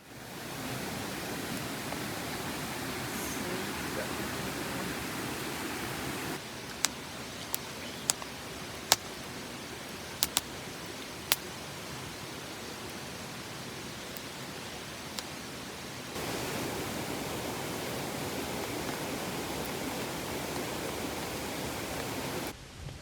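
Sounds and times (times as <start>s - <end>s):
rushing hiss: 0.0s - 22.5s
wood fire crackling and popping: 6.4s - 11.6s, 12.9s - 15.4s, 16.1s - 22.5s.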